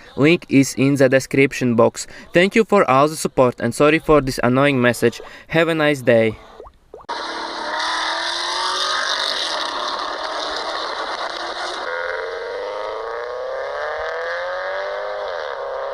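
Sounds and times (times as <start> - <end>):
car engine accelerating: 7.1 - 15.9.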